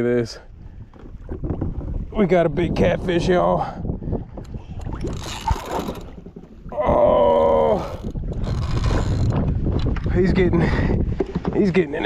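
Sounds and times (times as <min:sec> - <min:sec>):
wind buffeting microphone: 0:00.0 - 0:12.0
man's strained oh: 0:06.7 - 0:08.1.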